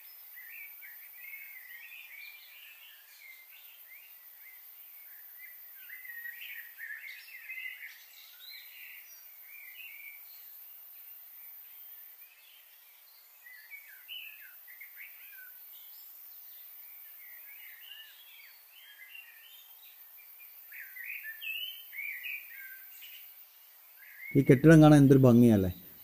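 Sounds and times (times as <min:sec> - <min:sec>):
faint background hiss: 0:00.0 - 0:26.0
birds chirping: 0:24.1 - 0:26.0.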